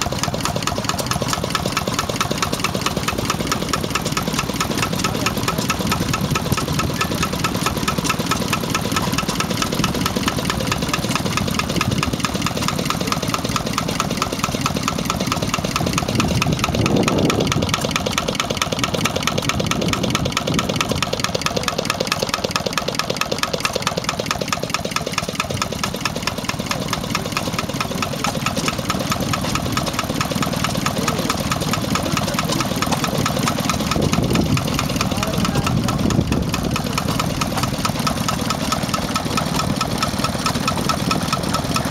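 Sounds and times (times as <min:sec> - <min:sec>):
stationary engine running: 0:00.0 - 0:41.9.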